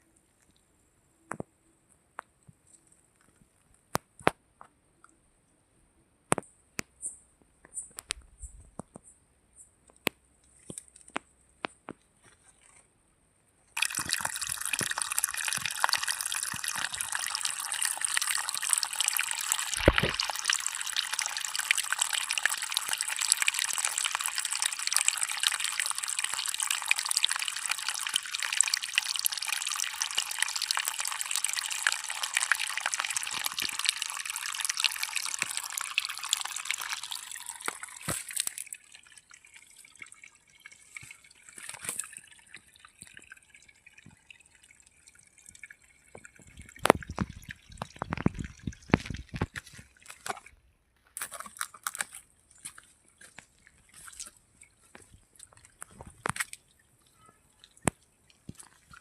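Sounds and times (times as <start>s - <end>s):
sharp clicks and drips: 6.3s - 12.4s, 13.8s - 50.5s, 51.2s - 59.0s
rushing water: 13.8s - 44.0s.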